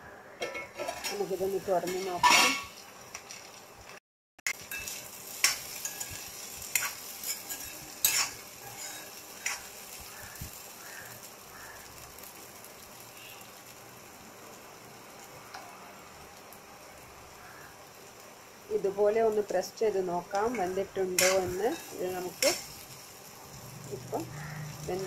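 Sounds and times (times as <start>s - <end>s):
metal spoon scraping a pan: 0.4s - 2.7s, 4.6s - 10.6s, 20.3s - 22.9s
potatoes sizzling in oil: 0.7s - 25.0s.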